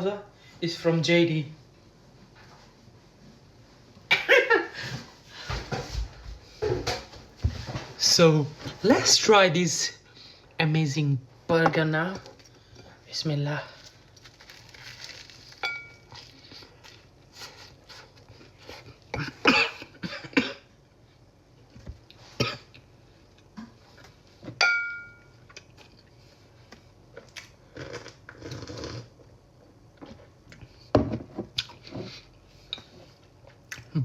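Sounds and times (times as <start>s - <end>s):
person chewing food: 25.4s - 30.9s, 31.5s - 33.9s.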